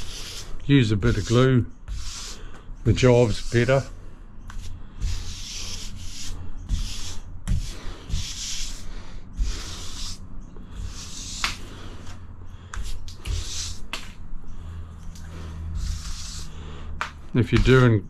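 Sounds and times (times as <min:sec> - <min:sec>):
grout scraping across tiles: 0:00.0 - 0:03.9, 0:15.1 - 0:16.5.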